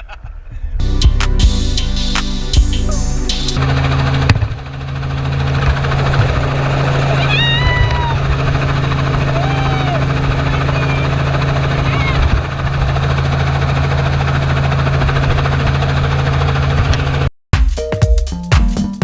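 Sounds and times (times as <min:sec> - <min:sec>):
helicopter engine and rotor drone: 0:03.6 - 0:16.8.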